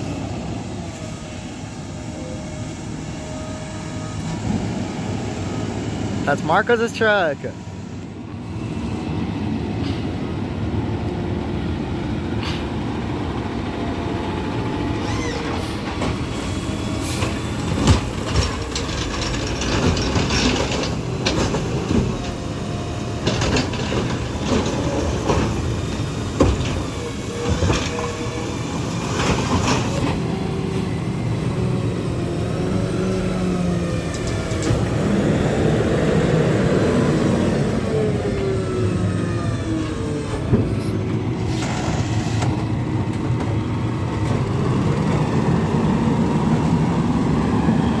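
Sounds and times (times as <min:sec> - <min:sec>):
high squealing: 0:15.0 - 0:15.8.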